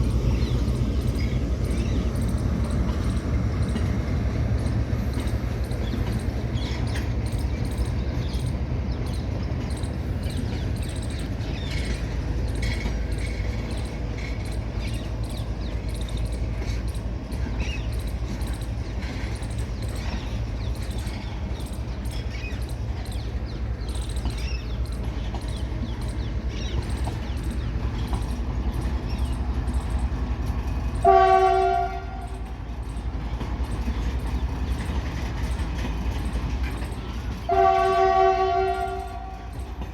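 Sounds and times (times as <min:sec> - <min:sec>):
goods train rumbling: 0:00.0 - 0:39.9
train horn blast: 0:31.0 - 0:32.5, 0:37.5 - 0:39.6.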